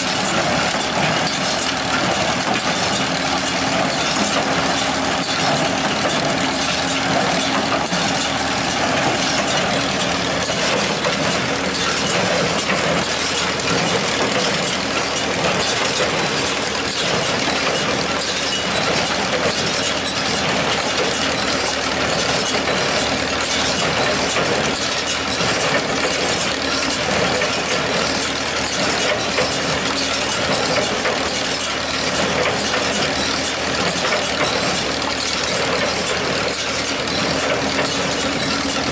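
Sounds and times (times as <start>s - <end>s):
baler gears clattering: 0.0s - 38.9s
engine running steadily: 0.0s - 38.9s.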